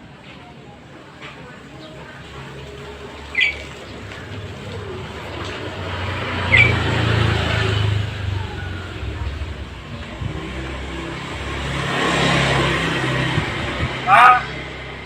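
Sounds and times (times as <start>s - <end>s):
vehicle passing by: 1.7s - 15.0s
myna whistling calls: 3.2s - 4.0s, 6.4s - 7.3s.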